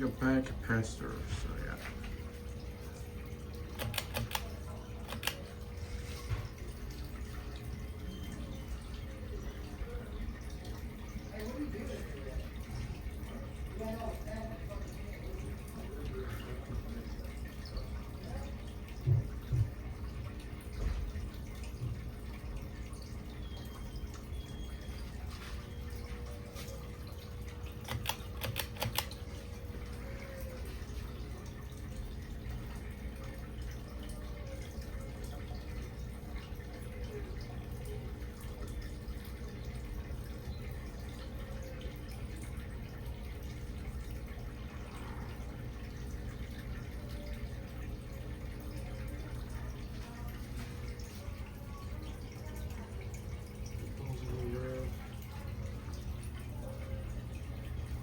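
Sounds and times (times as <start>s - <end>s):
faint steady hum: 0.0s - 58.0s
sharp clicks: 3.8s - 4.5s, 27.9s - 29.2s.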